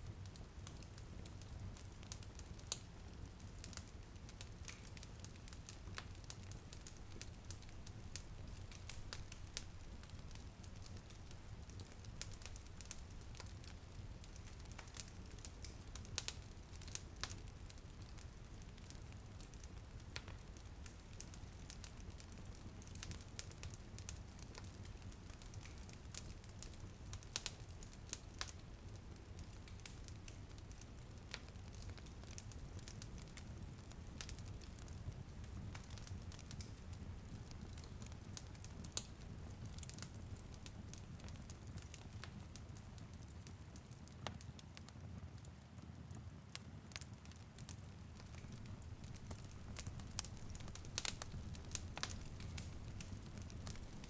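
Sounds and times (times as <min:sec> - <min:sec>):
wood fire crackling: 0:00.0 - 0:54.0
drizzle pattering on window: 0:47.7 - 0:54.0.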